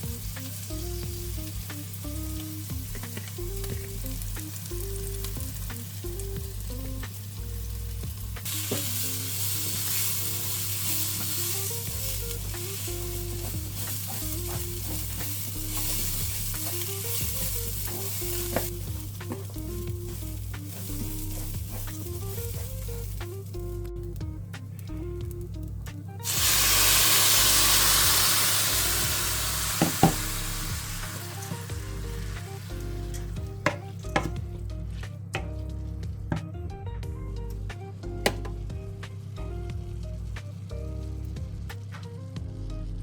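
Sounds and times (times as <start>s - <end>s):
food sizzling in a pan: 0.0s - 23.8s, 26.2s - 34.3s.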